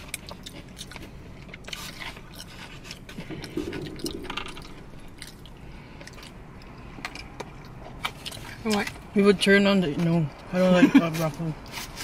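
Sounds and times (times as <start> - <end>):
wet chewing: 0.0 - 9.0.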